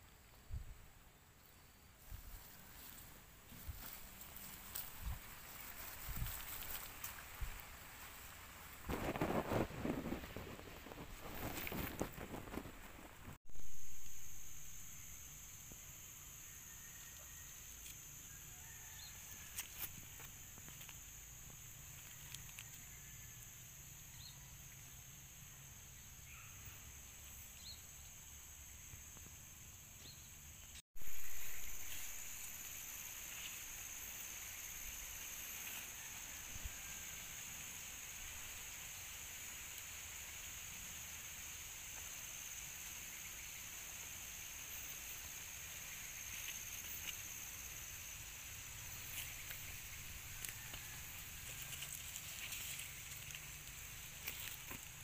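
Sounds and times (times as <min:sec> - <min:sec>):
steady high-pitched hiss: 0:00.0 - 0:55.0
high-pitched insect drone: 0:13.5 - 0:55.0.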